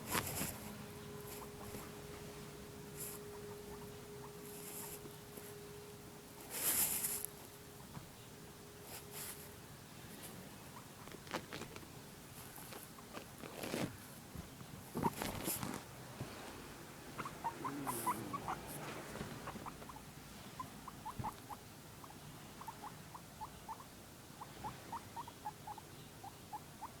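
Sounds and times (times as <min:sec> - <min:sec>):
guinea pig squeaking: 0:00.0 - 0:01.9, 0:03.0 - 0:05.5, 0:06.4 - 0:08.0, 0:10.7 - 0:14.0, 0:14.8 - 0:15.8, 0:17.1 - 0:27.0
rustling: 0:00.0 - 0:05.8, 0:06.4 - 0:07.6, 0:08.9 - 0:21.5.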